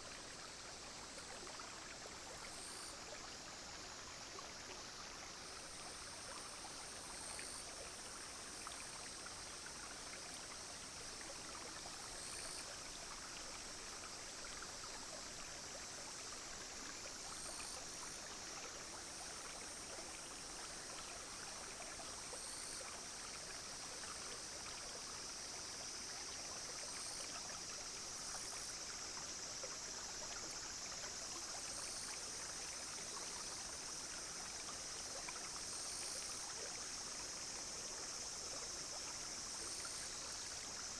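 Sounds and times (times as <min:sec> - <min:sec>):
cicadas and insects buzzing: 0:00.0 - 0:40.9
stream babbling over stones: 0:00.0 - 0:40.9.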